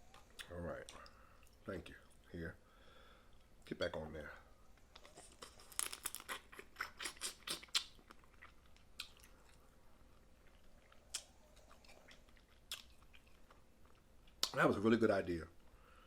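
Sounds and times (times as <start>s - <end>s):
crab shell crackling: 4.8s - 9.5s
wet chewing clicks: 5.0s - 9.6s, 10.4s - 14.6s.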